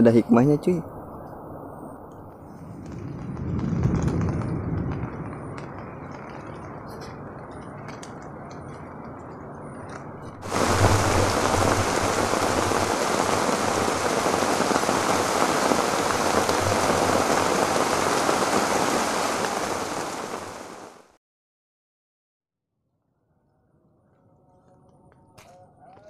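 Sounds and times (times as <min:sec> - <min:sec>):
heavy rain on water and foliage: 0:02.4 - 0:21.2.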